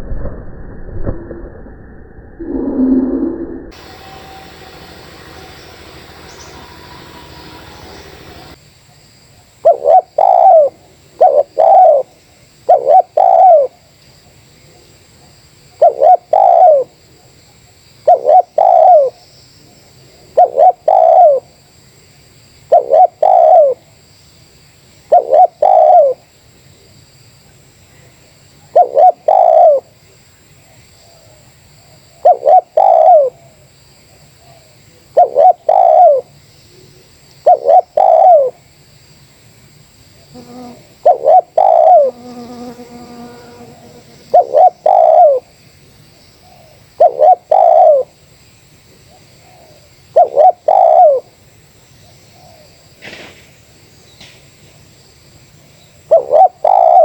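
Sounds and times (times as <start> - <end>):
dove cooing: 9.6 - 12.1, 12.7 - 13.8, 15.8 - 17.0, 18.1 - 19.2, 20.3 - 21.4, 22.7 - 23.8, 25.1 - 26.2, 28.7 - 29.9, 32.2 - 33.5, 34.4 - 38.6, 40.3 - 45.5, 46.5 - 48.1, 49.4 - 51.3, 56.1 - 57.0.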